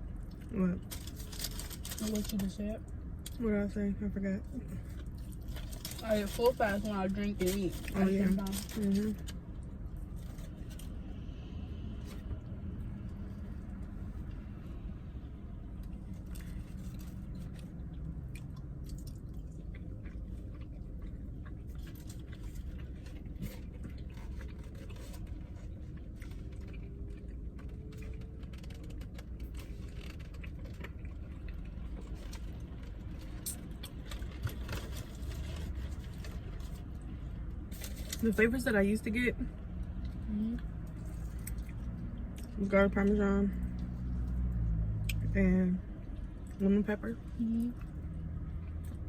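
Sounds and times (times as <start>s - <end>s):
chewing and crunching food: 0.0s - 3.8s, 4.4s - 38.7s, 39.5s - 49.0s
low hum inside a car: 0.0s - 49.0s
small clicks scrapes and rustles: 0.8s - 2.8s, 4.7s - 11.0s, 15.8s - 38.6s.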